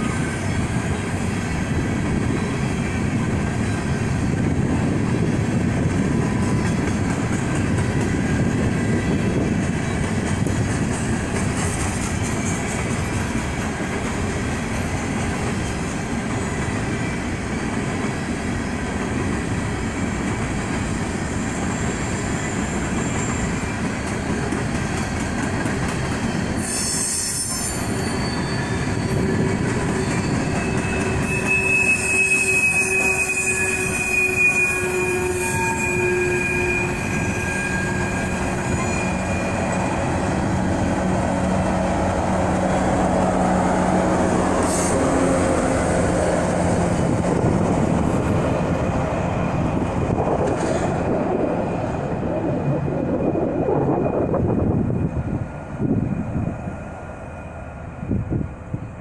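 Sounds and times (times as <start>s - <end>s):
train cars rumbling and clattering: 0.0s - 59.0s
wheels squealing: 24.9s - 48.4s
low locomotive hum: 34.9s - 59.0s.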